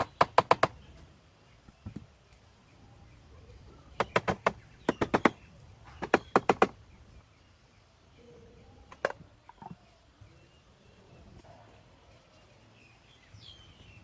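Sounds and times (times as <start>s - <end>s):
hammer tapping: 0.0s - 0.8s, 4.0s - 5.4s, 6.0s - 6.8s.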